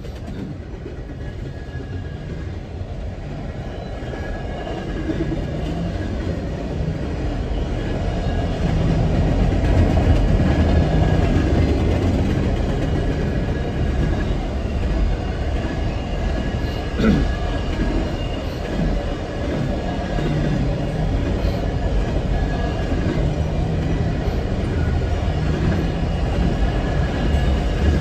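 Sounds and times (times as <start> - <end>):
wheels clickety-clack: 0.0 - 2.5, 8.6 - 28.0
train wheels rumbling on rails: 0.0 - 28.0.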